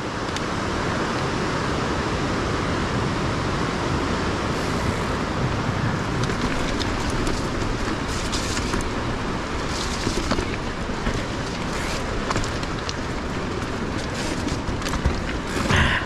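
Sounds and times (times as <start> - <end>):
bike rolling over rocky track: 4.5 - 16.0.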